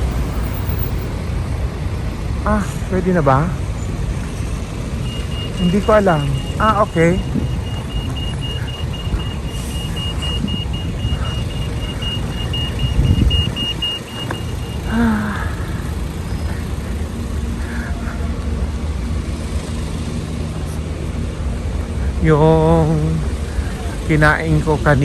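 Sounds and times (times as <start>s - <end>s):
pedestrian crossing signal beeping: 0.0s - 1.1s, 3.5s - 18.1s
low rumble of street traffic: 0.0s - 25.0s.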